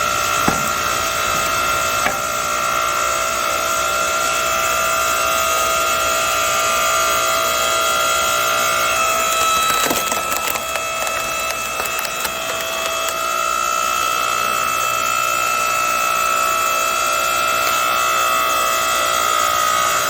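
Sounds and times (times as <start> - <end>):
hydraulic log splitter whine: 0.0 - 20.0
log cracking and splintering: 8.9 - 13.3.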